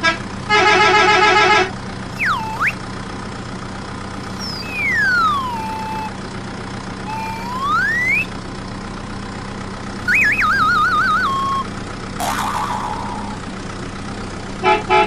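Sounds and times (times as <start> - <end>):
cartoon whistle sound effects: 2.2 - 2.8, 4.3 - 6.2, 7.1 - 8.3, 10.0 - 13.4
steady motor-like hum: 7.0 - 8.7.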